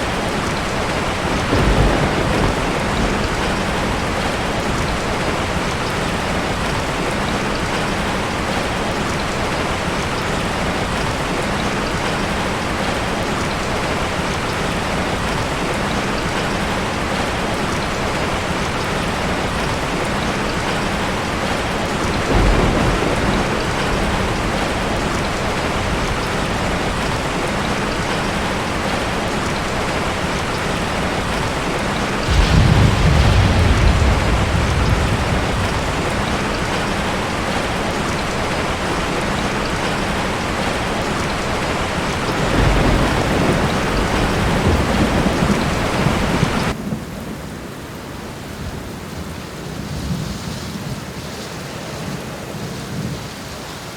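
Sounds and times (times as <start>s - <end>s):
steady rain falling: 0.0s - 53.9s
thunder rolling: 1.1s - 6.8s, 22.1s - 26.2s, 32.2s - 37.0s, 42.2s - 47.1s.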